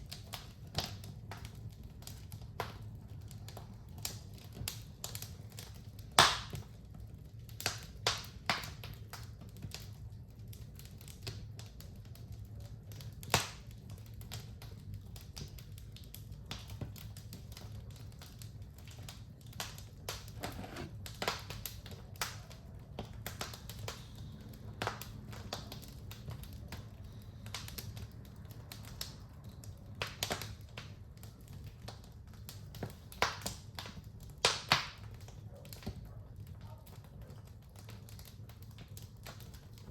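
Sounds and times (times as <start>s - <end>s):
low steady fire rumble: 0.0s - 39.9s
wood fire crackling and popping: 0.0s - 39.9s.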